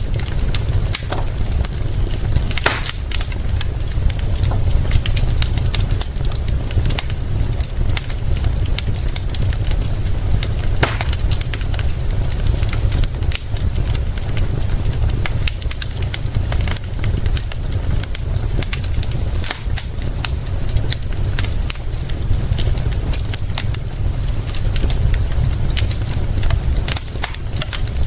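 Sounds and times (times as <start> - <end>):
low rumble: 0.0 - 26.9
rain: 0.0 - 28.0
wood fire crackling: 0.0 - 28.0.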